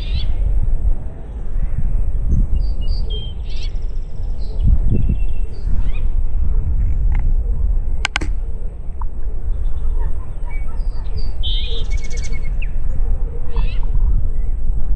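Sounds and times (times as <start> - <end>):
songbirds chirping: 0.0 - 14.8
wind buffeting microphone: 0.0 - 14.9
sharp clicks: 8.0 - 8.4.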